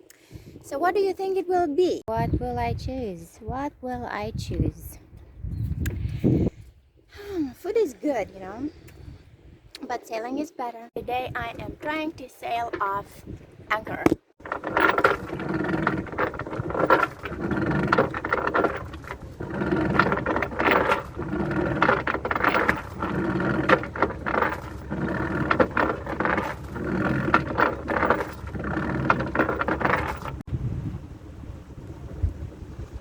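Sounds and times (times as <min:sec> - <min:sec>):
anchor chain scraping and ringing: 0:14.4 - 0:30.5.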